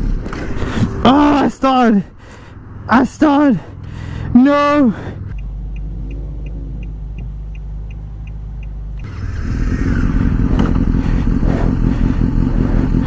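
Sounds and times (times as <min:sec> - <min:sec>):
faint ticking: 0:05.4 - 0:09.1
low hum: 0:05.4 - 0:09.2
motorcycle engine running rough: 0:05.4 - 0:13.0.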